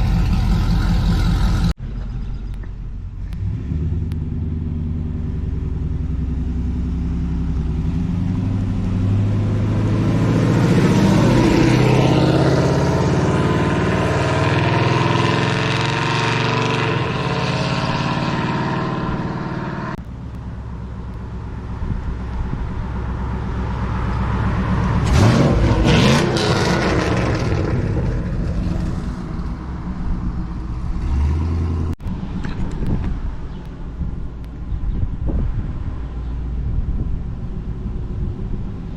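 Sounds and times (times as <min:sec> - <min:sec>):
truck engine revving: 0:00.0 - 0:20.0, 0:23.0 - 0:32.1.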